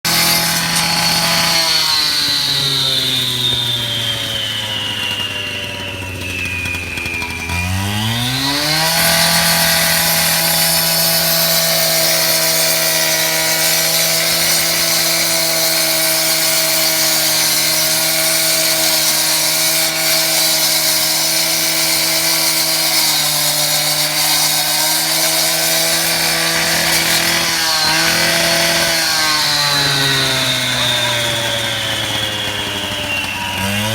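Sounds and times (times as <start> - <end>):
wet saw running: 0.0 - 33.9.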